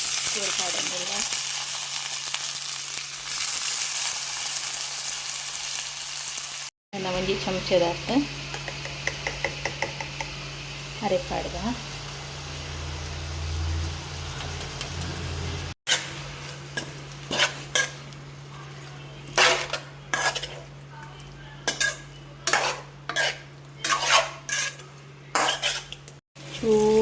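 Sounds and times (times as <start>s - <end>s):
light sizzle: 0.0s - 22.6s, 23.4s - 27.0s
metal spoon scraping a pot: 16.8s - 18.1s, 19.3s - 20.7s, 21.6s - 26.2s.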